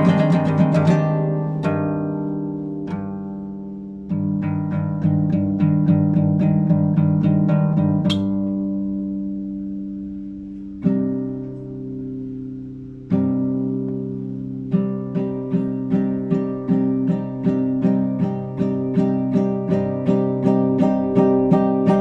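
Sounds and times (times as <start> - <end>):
classical guitar playing: 0.0 - 22.0
guitar string squeak: 8.1 - 8.3.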